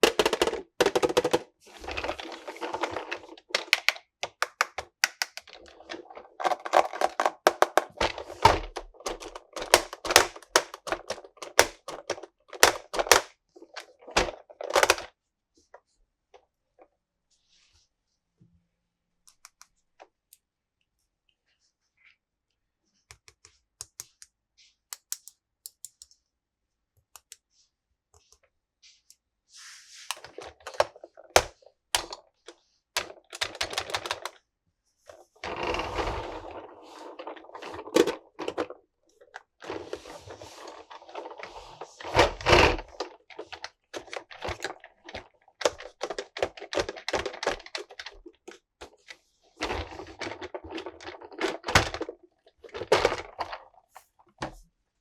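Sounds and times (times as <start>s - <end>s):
sharp clicks and taps: 23.1s - 26.2s, 27.0s - 27.4s
packaging rustling and crinkling: 35.1s - 54.2s.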